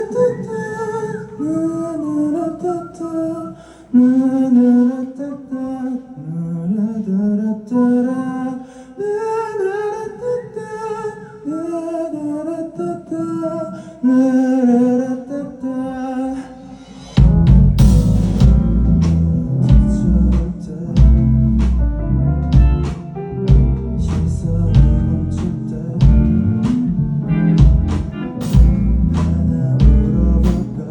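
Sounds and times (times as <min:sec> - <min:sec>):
band with bass and drums: 0:17.0 - 0:30.8
soft low drone: 0:17.2 - 0:30.9.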